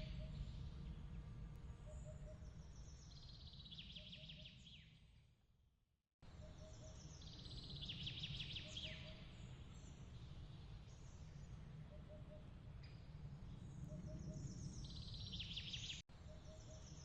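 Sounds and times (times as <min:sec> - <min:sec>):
steady low rumble: 0:00.0 - 0:03.0
bird-like chirping trills: 0:01.8 - 0:04.9, 0:13.8 - 0:17.0.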